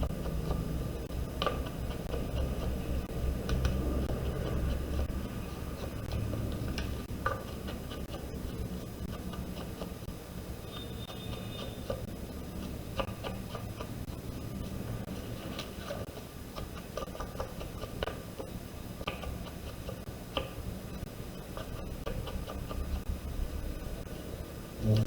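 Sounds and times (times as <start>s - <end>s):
low hum: 23.0s - 25.0s.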